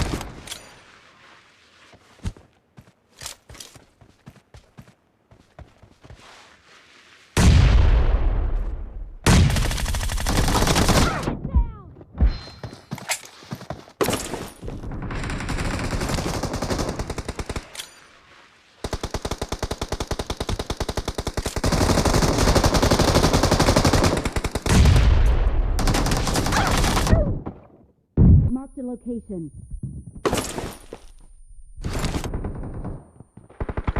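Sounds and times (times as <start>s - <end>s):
video game automatic gunfire: 31.9s - 33.9s.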